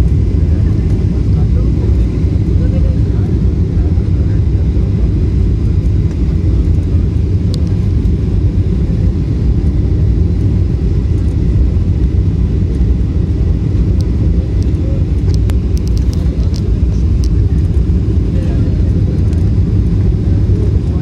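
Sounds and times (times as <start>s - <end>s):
airliner landing rumble: 0.0s - 21.0s
faint clicks: 14.6s - 17.4s.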